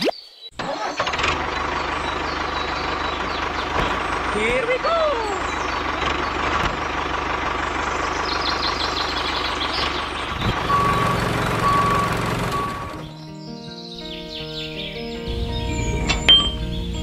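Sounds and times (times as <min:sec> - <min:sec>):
tractor engine running: 0:00.6 - 0:13.2, 0:15.2 - 0:17.0
reversing alarm beeping: 0:10.4 - 0:13.2, 0:15.3 - 0:17.0.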